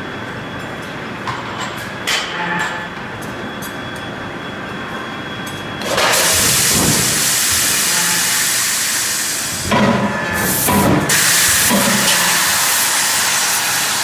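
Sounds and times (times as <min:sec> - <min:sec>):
loud continuous hiss: 0:06.0 - 0:14.0.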